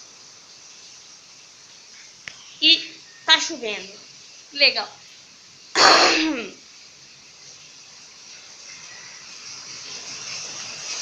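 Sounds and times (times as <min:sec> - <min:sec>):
rain hissing: 0:00.0 - 0:11.0
person vocal burst: 0:05.8 - 0:06.6.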